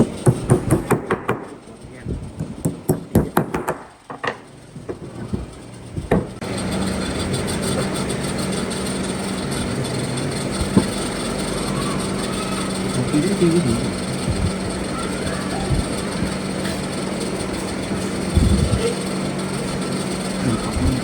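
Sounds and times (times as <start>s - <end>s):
sharp knocks on wood: 0.0s - 1.5s, 2.4s - 6.4s
machine humming: 0.0s - 21.0s.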